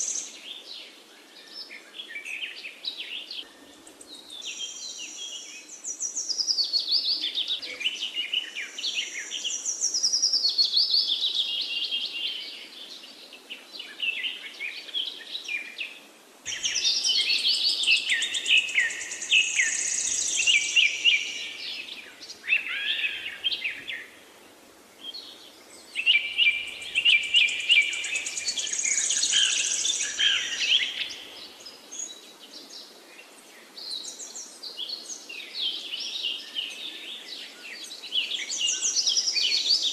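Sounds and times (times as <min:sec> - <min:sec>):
small birds chirping: 0:00.0 - 0:24.2, 0:24.9 - 0:39.9.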